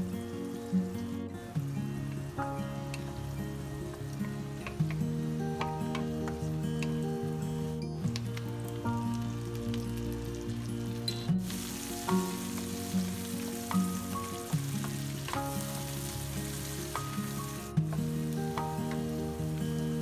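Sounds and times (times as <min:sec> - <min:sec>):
background music: 0:00.0 - 0:20.0
food sizzling in oil: 0:00.0 - 0:20.0.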